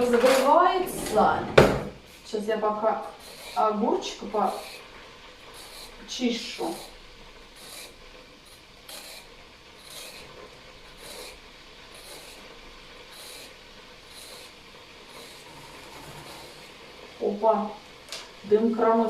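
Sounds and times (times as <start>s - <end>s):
peeler scraping cucumber skin: 3.0s - 4.9s.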